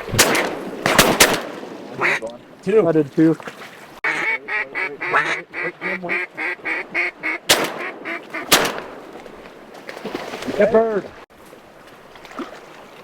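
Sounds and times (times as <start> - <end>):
shotgun blasts: 0.0 - 2.0, 7.5 - 9.4
mallard quacks: 2.0 - 2.3, 4.0 - 8.6.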